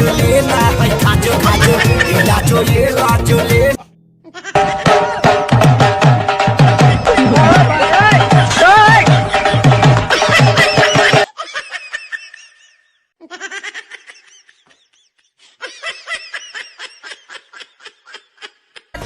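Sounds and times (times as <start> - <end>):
music: 0.0 - 3.9, 4.6 - 11.3
high-pitched laughter: 1.3 - 2.7, 4.2 - 5.4, 8.5 - 19.0.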